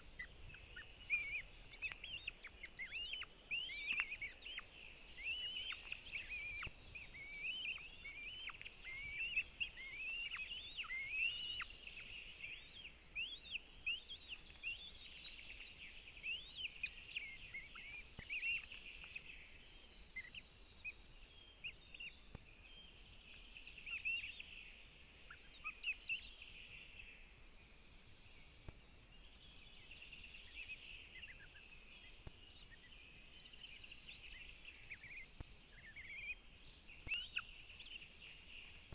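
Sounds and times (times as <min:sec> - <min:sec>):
hawk chicks squealing begging calls: 0:00.2 - 0:12.0.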